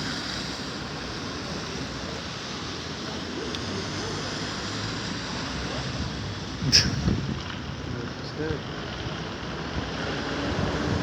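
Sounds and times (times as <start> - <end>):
wind rushing: 6.7 - 7.4.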